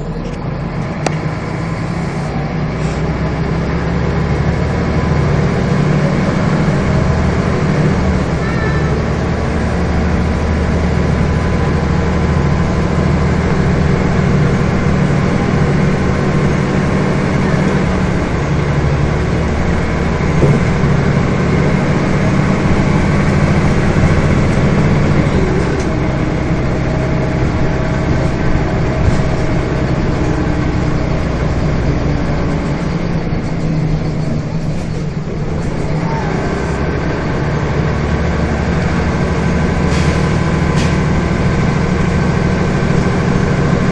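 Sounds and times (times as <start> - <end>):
bus engine running: 0.0 - 43.9
road noise: 0.0 - 43.9.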